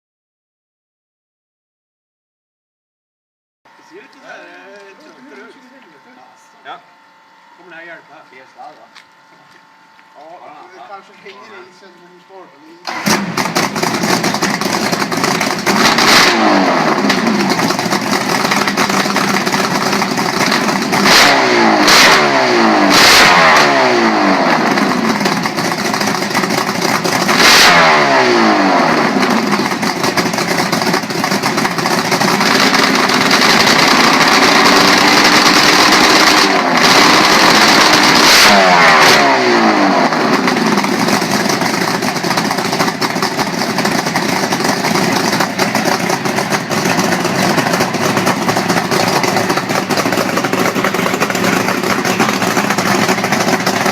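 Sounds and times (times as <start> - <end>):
motorcycle engine revving: 12.8 - 53.9
sharp exhaust cracks: 12.8 - 53.9.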